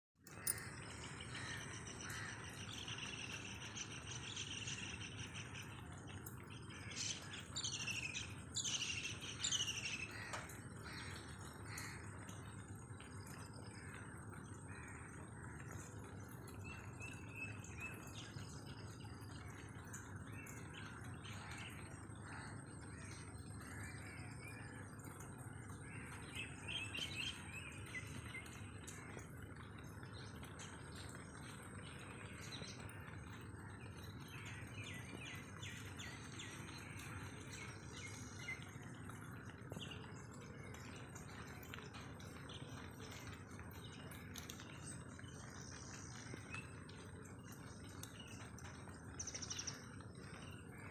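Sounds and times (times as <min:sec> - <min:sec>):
birds chirping: 0:00.2 - 0:50.9.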